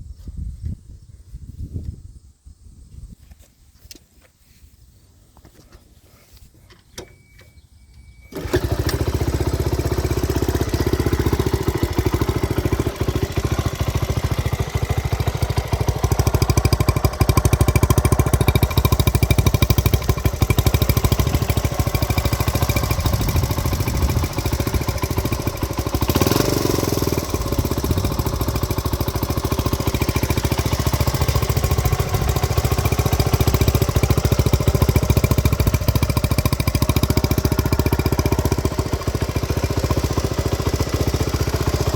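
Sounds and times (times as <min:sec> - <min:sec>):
small engine starting and running: 0:08.0 - 0:41.9.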